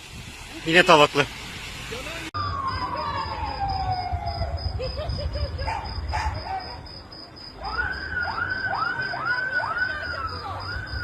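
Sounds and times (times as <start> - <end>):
electronic siren yelping: 2.4 - 4.9, 7.6 - 11.0.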